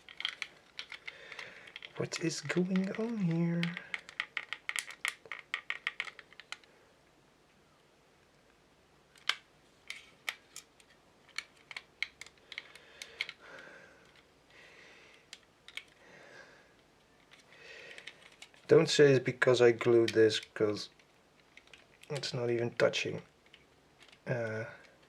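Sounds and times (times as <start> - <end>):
plastic parts clicking: 0.0 - 6.7, 9.1 - 14.3, 15.1 - 16.0, 16.8 - 18.7, 19.8 - 25.0.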